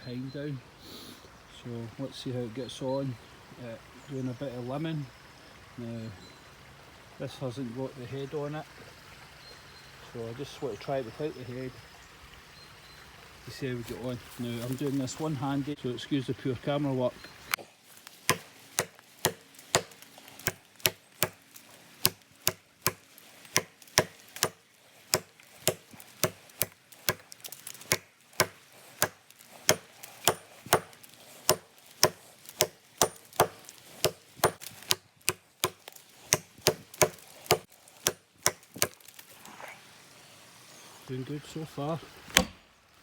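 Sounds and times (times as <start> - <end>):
axe chopping wood: 18.3 - 21.4, 22.0 - 39.1.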